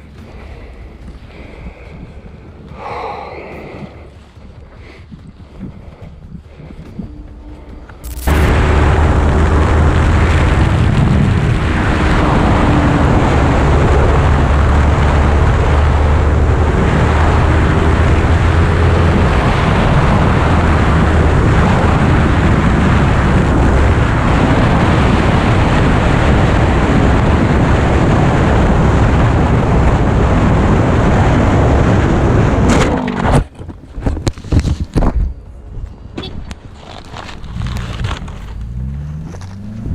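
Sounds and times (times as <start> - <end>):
wind noise over microphone: 0.0 - 39.9
motorcycle running at speed: 5.2 - 33.5, 36.6 - 39.9.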